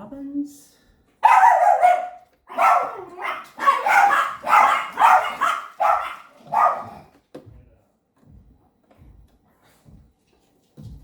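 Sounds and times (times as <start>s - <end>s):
dog barking: 1.2s - 7.1s.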